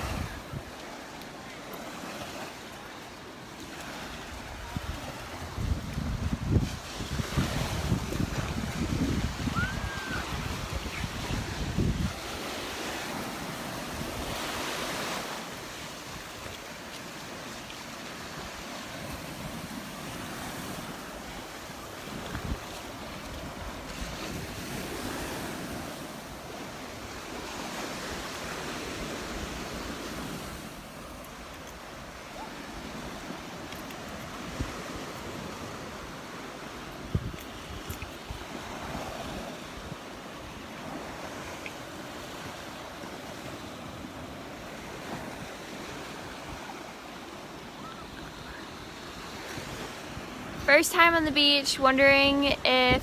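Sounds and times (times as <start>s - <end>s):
wind buffeting microphone: 0.0s - 0.8s, 4.2s - 15.1s, 18.4s - 26.4s, 36.9s - 40.1s
surf breaking on shore: 0.0s - 53.0s.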